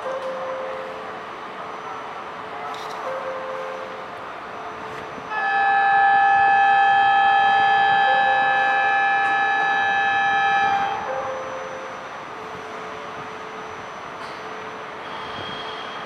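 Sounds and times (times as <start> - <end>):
train horn blast: 5.3 - 11.2.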